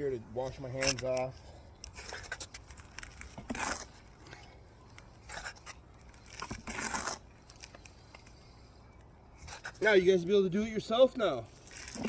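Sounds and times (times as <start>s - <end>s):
mortar scraping into brick joints: 0.5s - 8.3s, 9.4s - 9.9s.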